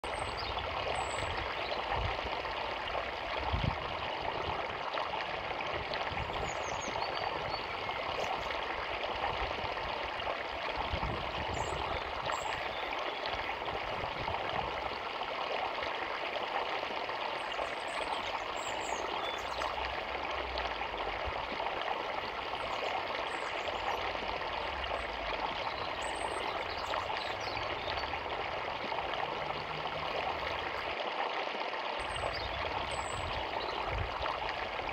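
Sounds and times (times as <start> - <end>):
river water rushing: 0.1 - 31.2.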